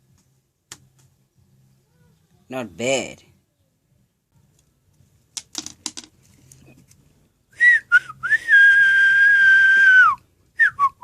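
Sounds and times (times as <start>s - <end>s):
person whistling: 7.6s - 11.0s.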